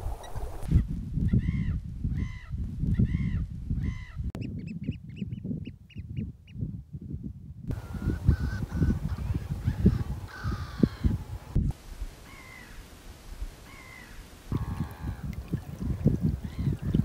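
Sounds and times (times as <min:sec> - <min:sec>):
wind rumble on microphone: 0:00.0 - 0:17.0
high piping bird notes: 0:07.7 - 0:11.3
birds calling: 0:07.7 - 0:11.6, 0:12.2 - 0:12.9, 0:13.6 - 0:17.0.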